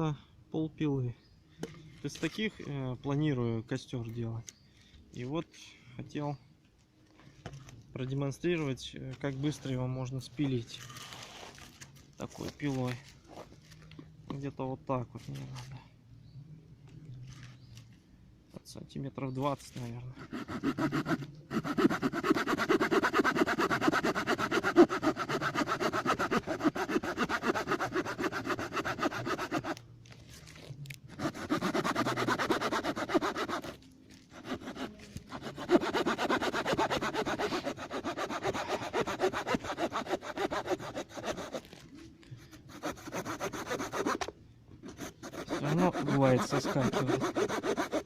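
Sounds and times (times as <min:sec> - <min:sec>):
saw cutting log: 0:20.2 - 0:29.8, 0:31.1 - 0:41.7, 0:42.7 - 0:44.3, 0:44.9 - 0:48.0.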